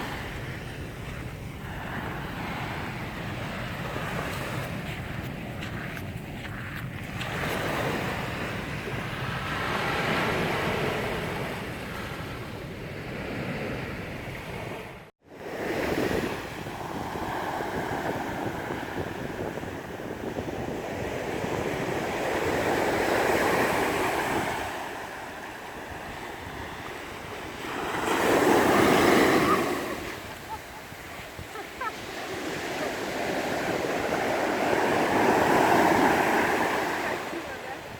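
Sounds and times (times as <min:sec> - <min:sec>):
wind on microphone: 0:00.0 - 0:37.9
sea waves breaking on beach: 0:13.1 - 0:37.9.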